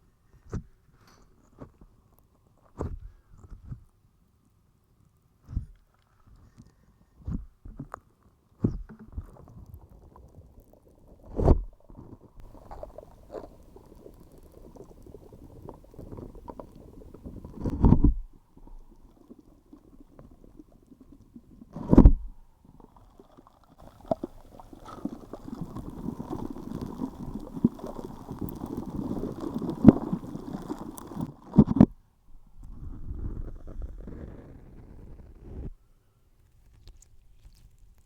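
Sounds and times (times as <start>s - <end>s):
slime squelching: 12.4s - 18.0s, 23.1s - 31.6s.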